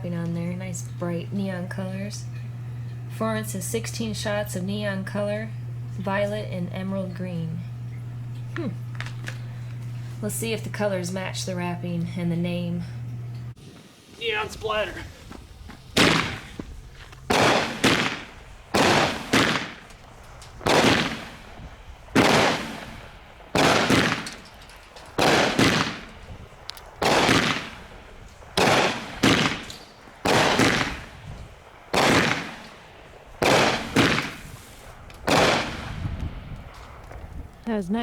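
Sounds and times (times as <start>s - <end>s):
firework cake shots firing: 14.2s - 24.5s, 25.1s - 37.1s.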